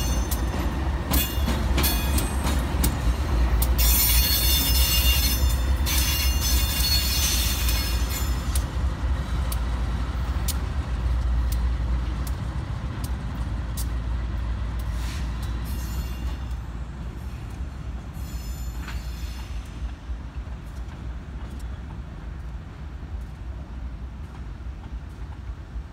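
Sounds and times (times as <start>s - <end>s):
train cars rumbling: 0.0s - 25.9s
high wheel squeal: 3.8s - 8.5s, 15.0s - 16.7s, 18.2s - 19.6s.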